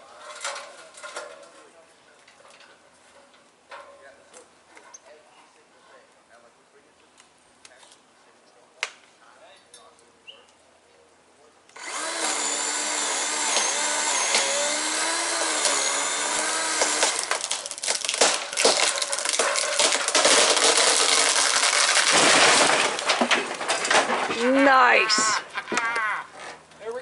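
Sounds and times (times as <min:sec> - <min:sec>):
chainsaw running: 0:11.8 - 0:22.2
chainsaw cutting into tree limb: 0:11.8 - 0:24.1
tree limb cracking and breaking: 0:15.4 - 0:24.7.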